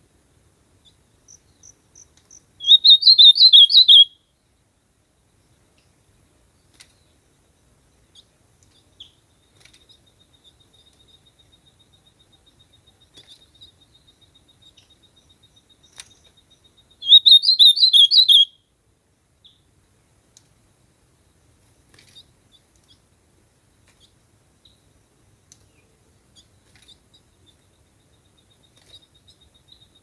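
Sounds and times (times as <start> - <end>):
faint bird chirps: 0.8 - 4.5, 6.5 - 18.7, 25.6 - 30.0
bird singing warbled phrase: 2.6 - 4.1, 17.0 - 18.5.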